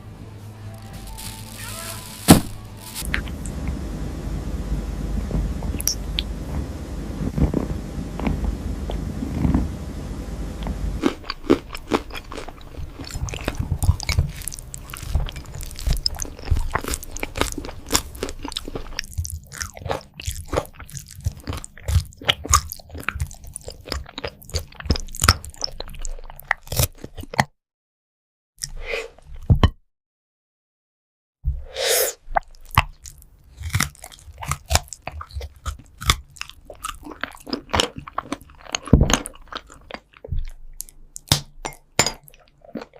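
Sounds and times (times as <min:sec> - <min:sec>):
cat chewing crunchy food: 0:05.3 - 0:09.9, 0:10.6 - 0:27.4, 0:32.4 - 0:41.0.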